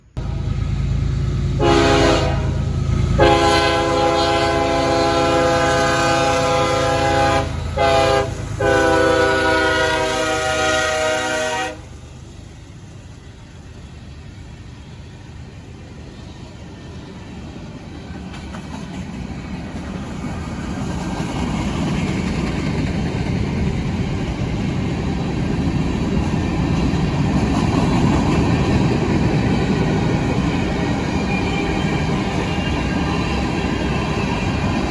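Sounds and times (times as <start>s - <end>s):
diesel engine rumble: 0.0s - 18.3s
train passing by: 0.0s - 34.9s
train horn: 1.6s - 12.0s.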